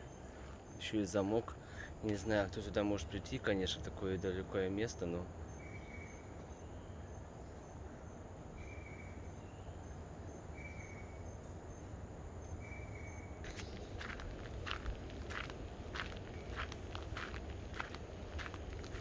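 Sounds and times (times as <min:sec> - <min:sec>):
insects chirping: 0:00.0 - 0:11.0, 0:12.6 - 0:19.0
low background noise: 0:00.0 - 0:19.0
footsteps: 0:13.5 - 0:19.0.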